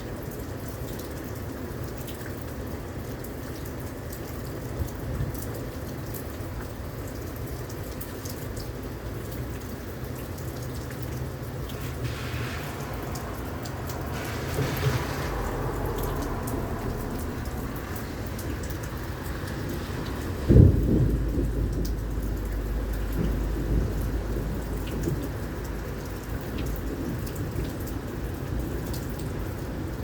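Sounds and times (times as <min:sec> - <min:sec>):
heavy rain pouring: 0:00.0 - 0:30.0
thunder rumbling: 0:11.6 - 0:30.0.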